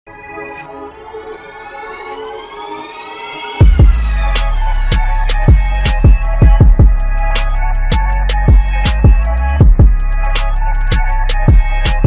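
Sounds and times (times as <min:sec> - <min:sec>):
rising synth build-up: 0:00.3 - 0:08.2
heavy bass and kick drum: 0:03.6 - 0:12.0.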